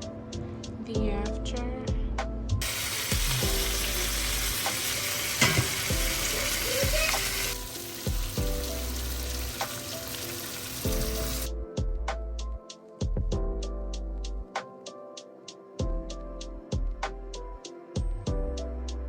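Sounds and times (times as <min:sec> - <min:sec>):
background music: 0:00.0 - 0:19.0
food sizzling in frying pan: 0:02.6 - 0:11.5.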